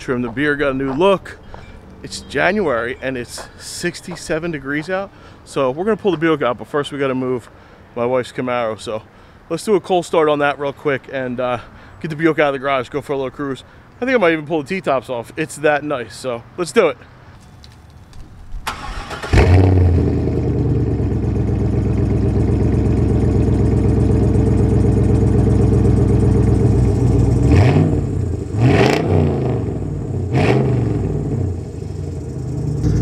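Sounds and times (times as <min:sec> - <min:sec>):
car engine idling and revving: 0:18.8 - 0:33.0.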